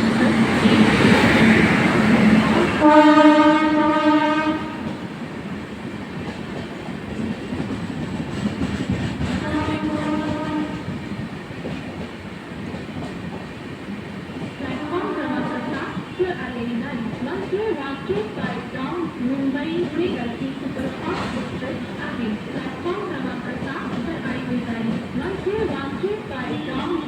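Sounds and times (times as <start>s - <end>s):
train horn blast: 2.8s - 5.0s, 9.4s - 10.9s, 14.8s - 16.2s
train wheels clattering on rails: 4.2s - 27.0s.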